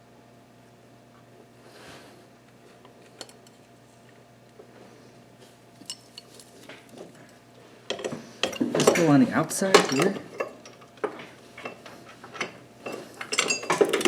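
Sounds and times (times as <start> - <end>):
metallic clicks and clinks: 7.9 - 10.9, 11.6 - 14.0.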